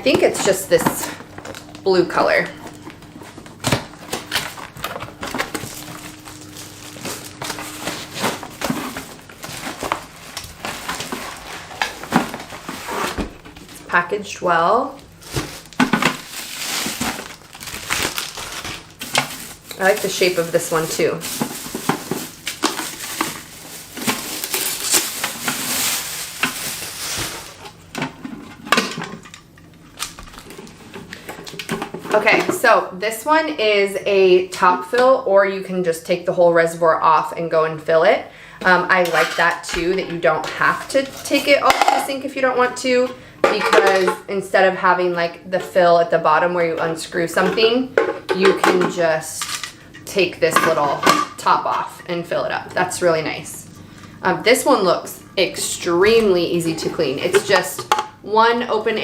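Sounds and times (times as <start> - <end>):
cardboard rustling and scraping: 2.4 - 14.0, 15.0 - 28.5.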